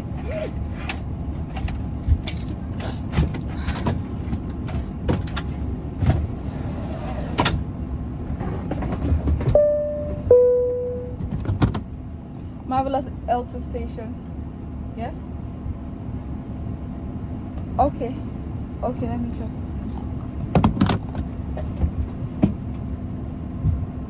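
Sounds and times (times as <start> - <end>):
aircraft cabin noise: 0.0 - 14.4, 15.0 - 24.0
two-tone cabin chime: 9.6 - 11.2.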